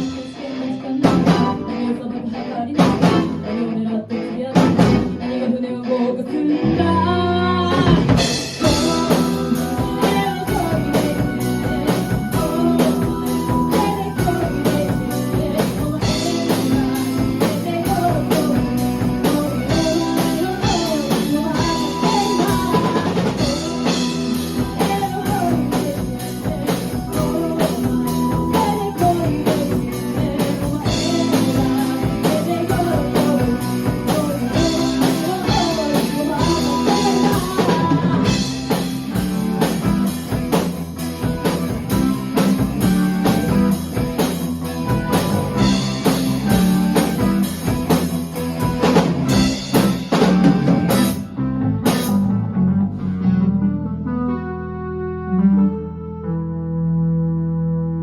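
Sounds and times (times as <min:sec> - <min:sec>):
drum kit beat: 0:00.0 - 0:01.6, 0:02.8 - 0:03.4, 0:07.6 - 0:51.2, 0:51.8 - 0:52.2
person singing: 0:00.0 - 0:40.4
guitars: 0:00.0 - 0:54.6.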